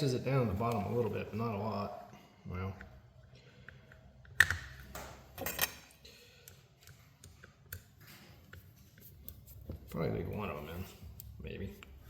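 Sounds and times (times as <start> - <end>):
plastic plug parts clicking: 4.2 - 4.9.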